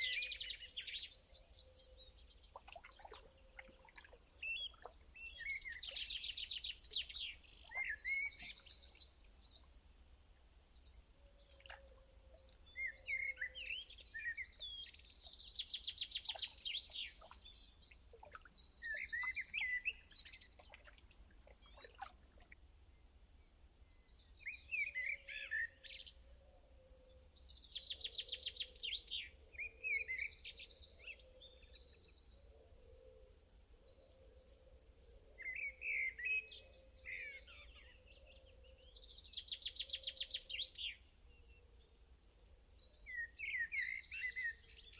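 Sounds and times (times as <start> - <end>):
songbirds trilling: 0.0 - 9.7, 10.8 - 22.6.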